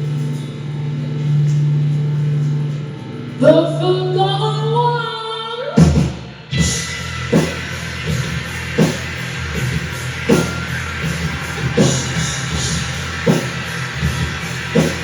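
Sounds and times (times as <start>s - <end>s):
low drone: 0.0s - 5.1s, 6.6s - 15.0s
drum beats: 5.8s - 15.0s.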